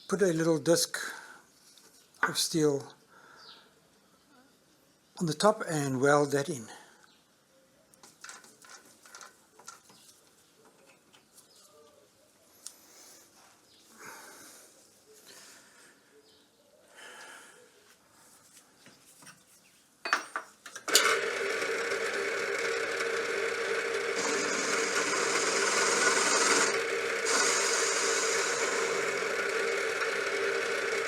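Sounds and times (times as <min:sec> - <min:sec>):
milling machine running: 0:20.9 - 0:31.0.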